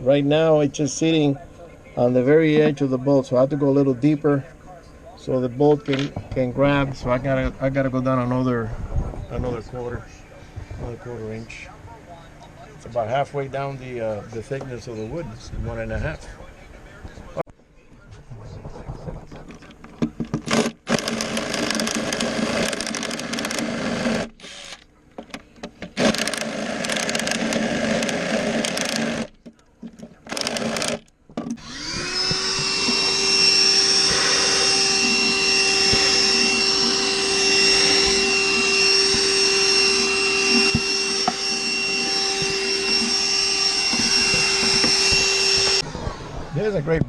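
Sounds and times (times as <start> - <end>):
vacuum cleaner whining: 20.3 - 24.8, 26.0 - 29.3, 30.3 - 47.0
cordless drill boring into wood: 20.4 - 24.8, 26.0 - 29.3, 30.3 - 46.8.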